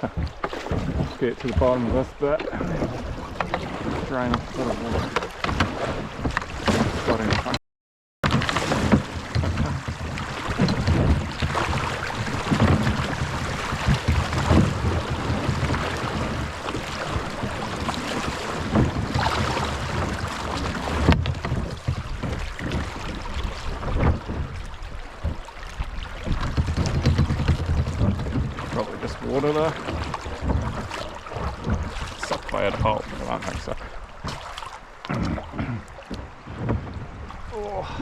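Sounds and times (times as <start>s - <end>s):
water splashing around kayak: 0.0s - 7.6s, 8.2s - 38.0s
wind buffeting microphone: 8.5s - 34.4s.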